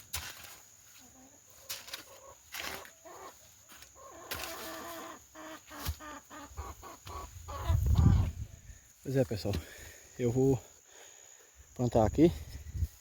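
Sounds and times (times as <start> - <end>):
chickens clucking: 1.0 - 8.8.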